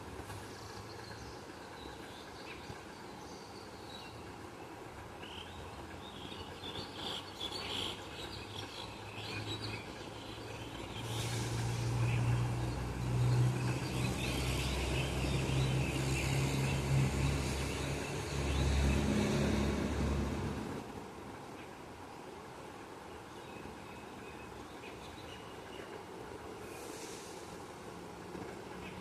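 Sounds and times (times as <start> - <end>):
vehicle engine hum: 8.2 - 21.2.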